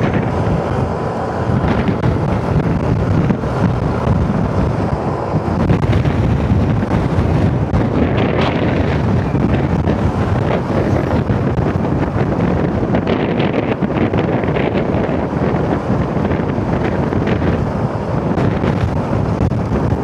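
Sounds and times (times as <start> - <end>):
road and vehicle noise: 0.0 - 20.0
wind buffeting microphone: 0.0 - 20.0.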